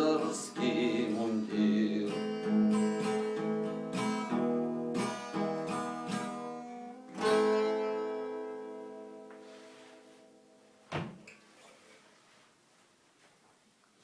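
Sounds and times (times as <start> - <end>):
acoustic guitar chords: 0.0 - 10.8.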